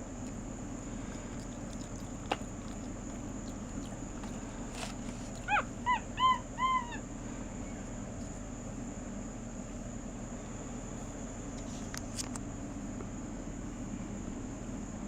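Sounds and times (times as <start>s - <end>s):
steady background hum: 0.0s - 15.0s
monkey squeaking calls: 5.2s - 7.0s.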